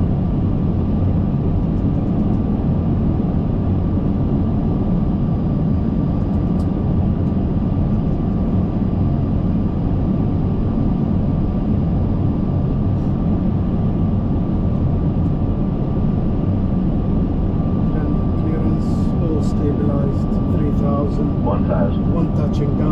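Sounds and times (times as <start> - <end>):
airflow and engine rush: 0.0 - 22.9
thin constant whine: 10.7 - 22.9.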